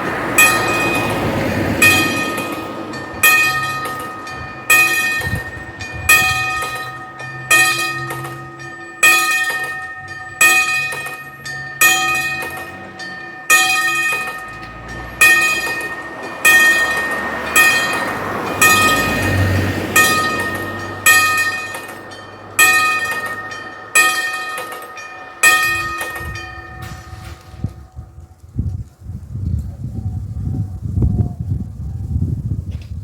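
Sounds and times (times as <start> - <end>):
level crossing warning bell: 0.0 - 28.2.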